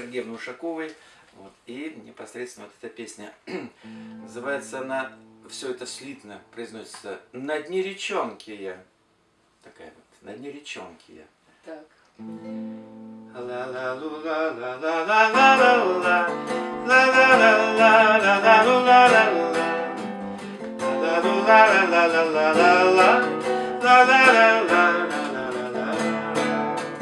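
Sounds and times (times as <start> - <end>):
acoustic guitar playing: 3.8 - 7.3, 12.2 - 27.0.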